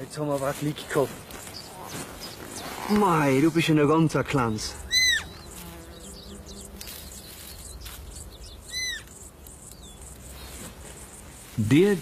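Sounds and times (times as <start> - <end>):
faint birdsong chirping: 0.0 - 12.0
high arched bird call: 4.6 - 10.1.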